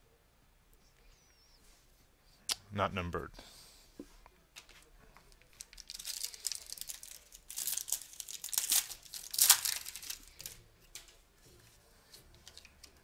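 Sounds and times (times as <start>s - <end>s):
foil wrapper tearing and crinkling: 5.6s - 10.6s.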